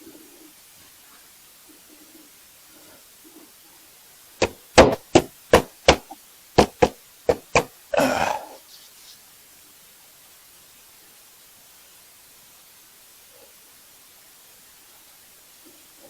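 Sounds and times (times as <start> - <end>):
sharp knocks: 4.4 - 7.7
burst of rough noise: 7.5 - 8.6.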